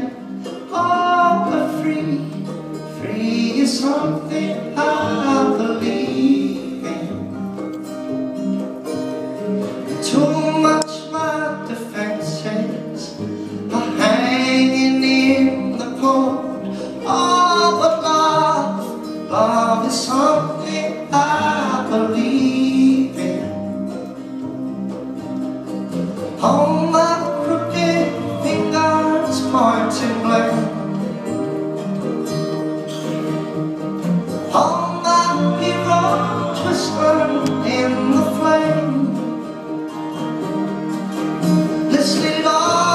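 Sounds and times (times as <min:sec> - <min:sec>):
person singing: 0:00.0 - 0:07.4, 0:10.1 - 0:23.7, 0:26.4 - 0:31.2, 0:34.5 - 0:39.4, 0:41.9 - 0:42.9
guitar: 0:00.0 - 0:42.9
live band playing: 0:00.0 - 0:42.9.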